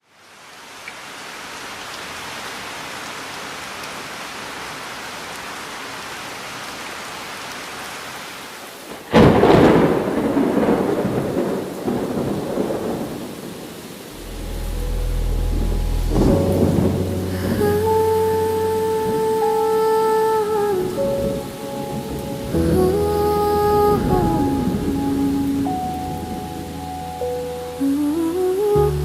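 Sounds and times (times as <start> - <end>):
steady rainfall: 0.0 - 29.0
thunder clap and rumble: 9.1 - 13.6, 14.2 - 19.2.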